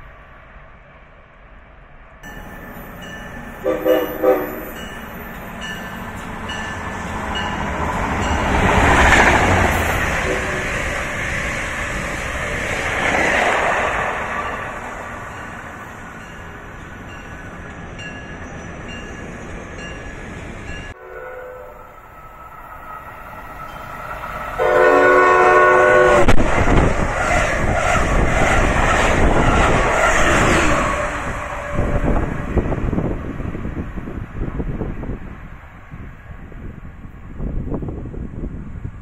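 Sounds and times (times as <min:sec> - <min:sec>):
train rushing past: 0:01.8 - 0:39.0
train horn chord: 0:03.4 - 0:05.0, 0:10.1 - 0:10.7, 0:21.0 - 0:22.1, 0:24.6 - 0:26.4.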